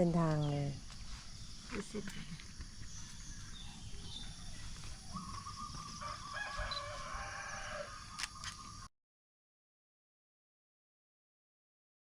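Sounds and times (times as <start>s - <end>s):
rooster crowing: 5.1s - 8.2s.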